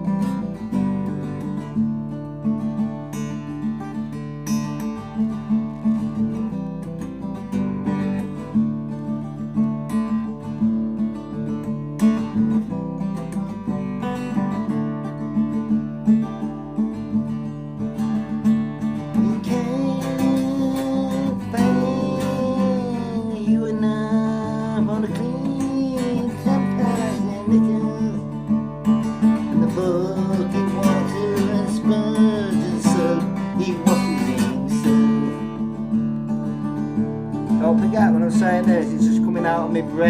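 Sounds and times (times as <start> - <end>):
acoustic guitar strumming: 0.0 - 40.0
person singing long wavering notes: 19.2 - 28.4, 29.5 - 35.8.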